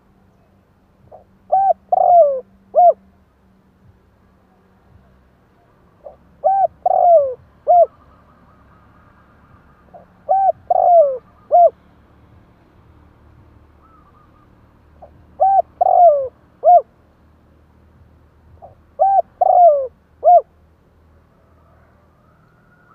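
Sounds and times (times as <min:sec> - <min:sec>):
dove cooing: 0:01.1 - 0:03.0, 0:06.0 - 0:08.1, 0:09.9 - 0:11.8, 0:13.8 - 0:16.9, 0:18.6 - 0:20.5.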